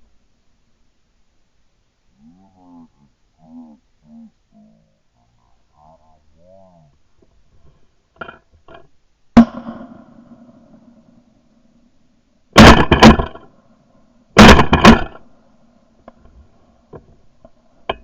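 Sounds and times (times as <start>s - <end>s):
shotgun shots: 9.4s - 10.6s, 12.6s - 13.4s, 14.4s - 15.2s.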